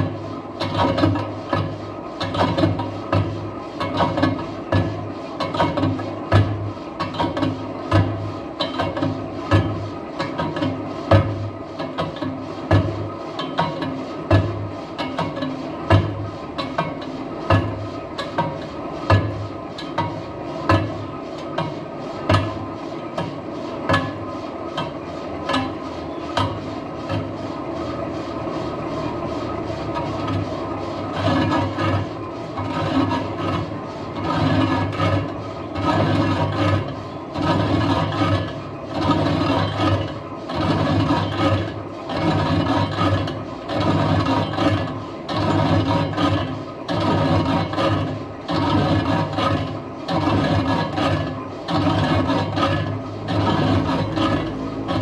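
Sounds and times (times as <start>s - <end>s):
lathe machine hum: 17.2s - 55.0s.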